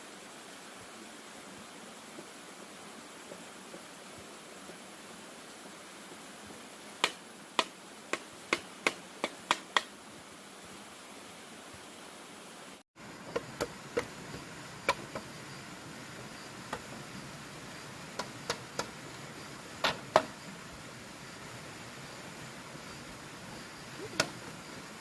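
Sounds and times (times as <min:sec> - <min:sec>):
steady hiss: 0:00.0 - 0:25.0
sharp taps and knocks: 0:07.0 - 0:09.9, 0:13.3 - 0:15.3, 0:16.7 - 0:17.0, 0:18.2 - 0:19.0, 0:19.8 - 0:20.4.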